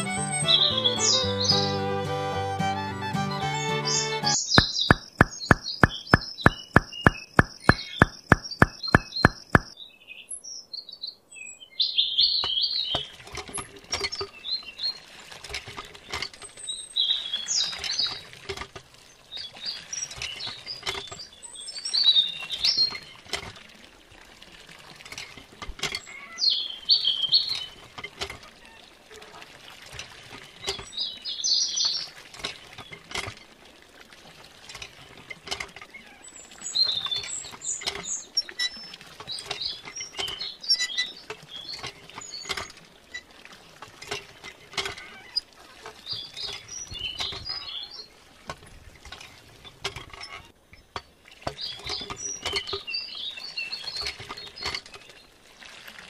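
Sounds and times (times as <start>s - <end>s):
birds chirping: 0.0s - 1.9s, 3.2s - 10.0s
water trickling into trough: 4.3s - 9.8s, 12.4s - 56.0s
rapid even ticking: 4.6s - 9.7s.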